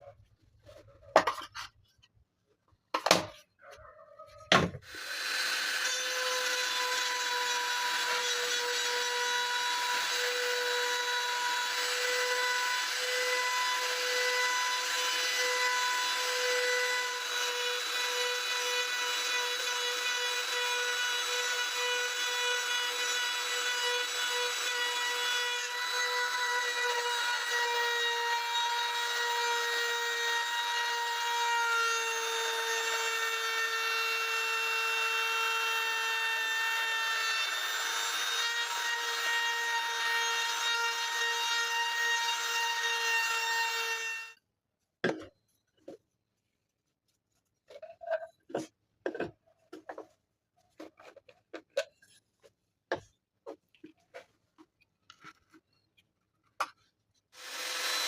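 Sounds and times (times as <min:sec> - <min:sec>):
small electric motor whirring: 0:57.4 - 0:58.0.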